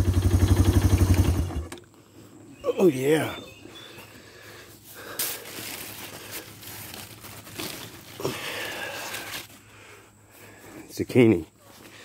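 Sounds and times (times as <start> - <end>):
leaves rustling and crinkling: 2.7 - 9.7
sharp leaf crackles: 4.9 - 9.6.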